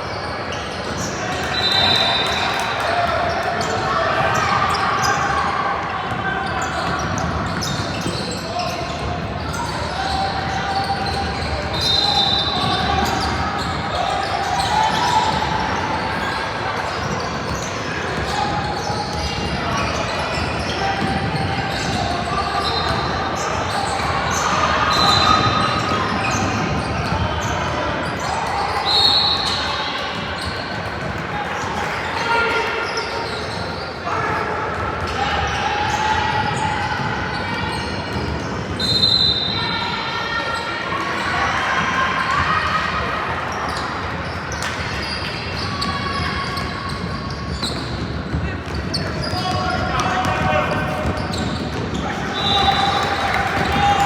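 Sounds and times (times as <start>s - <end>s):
sneaker squeaks: 0.0s - 54.0s
spectators' voices: 0.0s - 54.0s
basketball bouncing on court: 6.1s - 10.1s, 45.8s - 54.0s
shoe squeaks: 6.4s - 15.4s, 32.3s - 34.0s, 37.4s - 39.8s, 43.7s - 54.0s.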